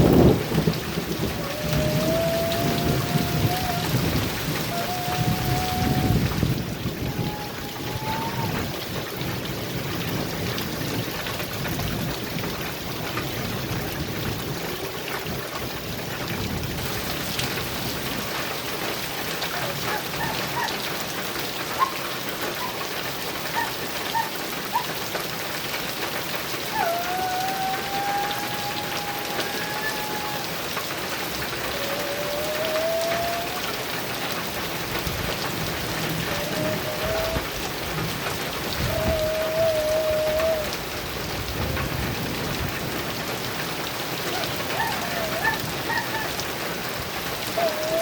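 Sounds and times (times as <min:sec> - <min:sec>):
thunder rumbling: 0:00.0 - 0:11.1, 0:34.6 - 0:48.0
heavy rain on a metal roof: 0:00.0 - 0:48.0.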